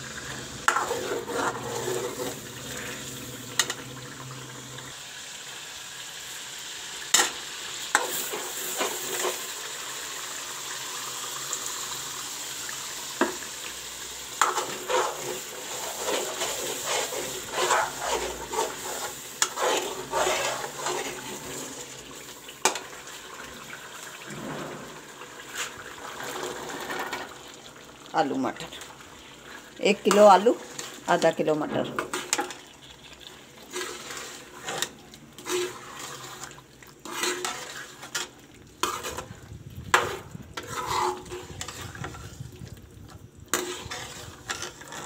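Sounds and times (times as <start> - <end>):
food sizzling in a pan: 0.0 - 45.0
spoon scraping a pan: 0.6 - 3.9, 7.1 - 9.6, 14.3 - 23.2, 24.6 - 27.3, 28.6 - 42.4, 43.5 - 45.0.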